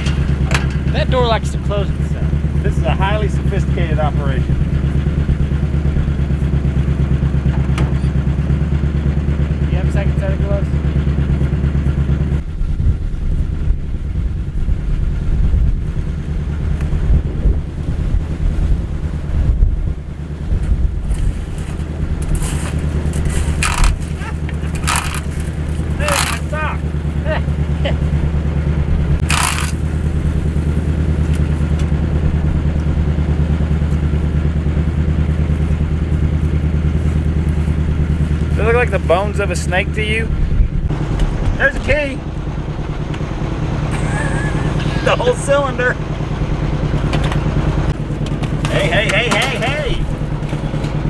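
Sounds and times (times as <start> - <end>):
truck engine idling: 0.0 - 51.0
wind buffeting microphone: 11.0 - 38.5, 40.3 - 43.9
short scraping rustle: 21.0 - 26.6, 29.2 - 30.8.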